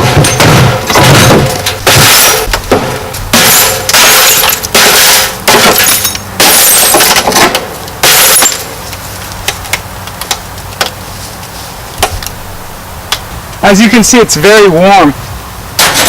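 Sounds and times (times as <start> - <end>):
screen glass smashing: 0.0 - 8.7
falling glass shards clinking: 3.4 - 7.3, 8.0 - 8.7.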